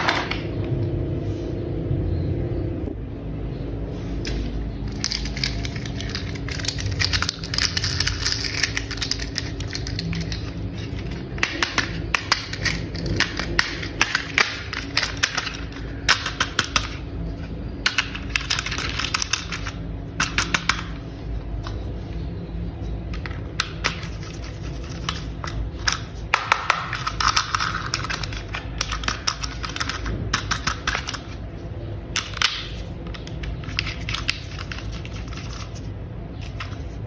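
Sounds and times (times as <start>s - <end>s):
steady low hum: 0.0s - 37.0s
plastic toy parts clicking: 4.3s - 17.0s, 17.8s - 20.9s, 23.1s - 31.4s.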